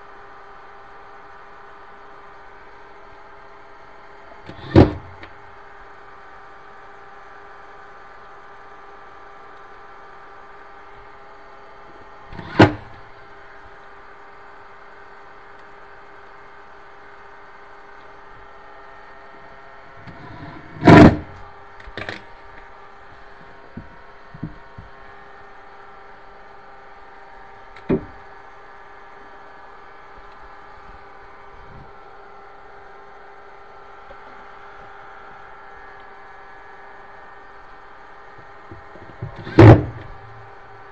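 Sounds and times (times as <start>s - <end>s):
steady hum: 0.0s - 40.9s
knocks and clunks on cabinet hardware: 4.5s - 5.1s, 12.4s - 13.0s, 20.4s - 21.4s, 27.9s - 28.1s, 39.2s - 40.1s.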